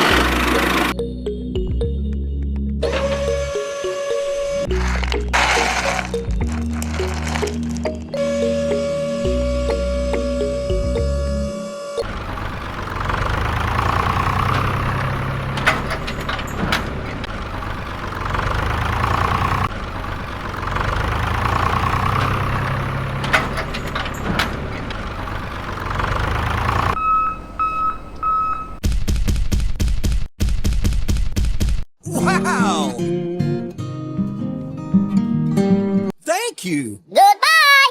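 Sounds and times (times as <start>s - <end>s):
tractor engine running: 0.0s - 1.2s, 2.8s - 11.1s, 12.0s - 28.8s
short beeps: 27.0s - 28.8s.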